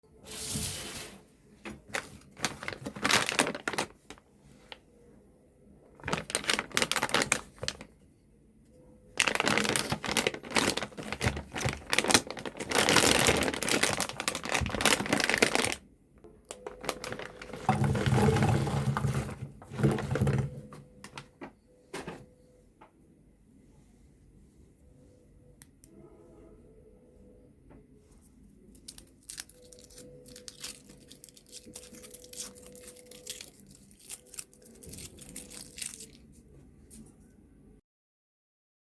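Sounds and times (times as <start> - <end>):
candy wrappers crinkling: 1.8 - 4.2, 5.9 - 7.9, 9.2 - 15.8, 16.5 - 20.2, 28.7 - 37.0.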